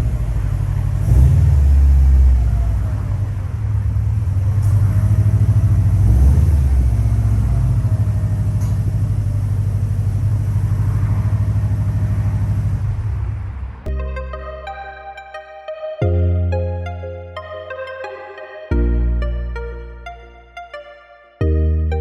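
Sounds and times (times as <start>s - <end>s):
car engine exhaust rumble: 0.0s - 13.9s.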